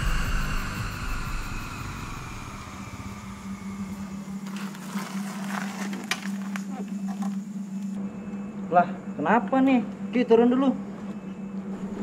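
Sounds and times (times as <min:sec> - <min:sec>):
motorcycle engine running down: 0:00.0 - 0:08.0
low steady hum: 0:00.0 - 0:12.0.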